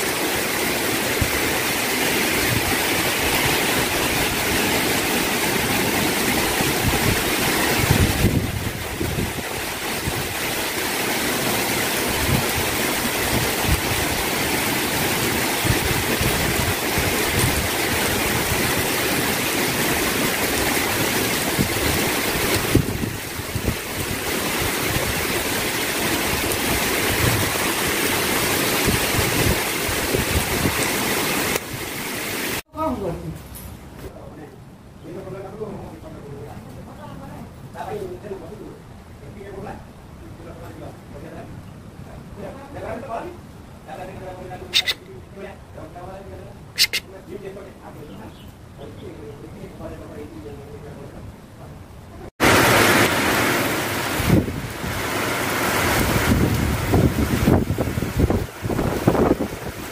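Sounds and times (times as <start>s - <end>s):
heavy rain pouring: 0.0s - 32.9s, 49.8s - 59.9s
wind buffeting the microphone: 5.6s - 10.5s, 21.4s - 27.7s, 28.7s - 30.9s, 54.1s - 55.1s, 55.8s - 59.9s.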